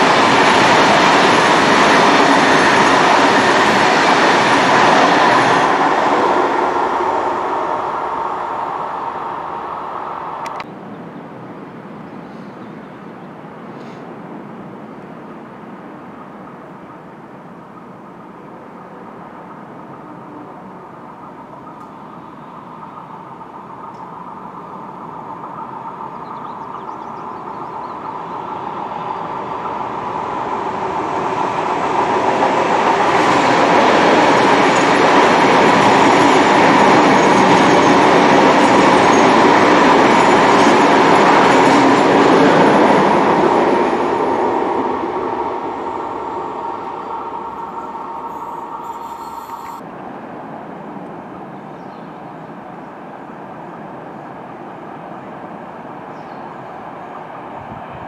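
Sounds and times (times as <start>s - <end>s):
steady high tone: 0.0s - 10.6s, 20.6s - 49.8s
train passing on rails: 0.0s - 58.0s.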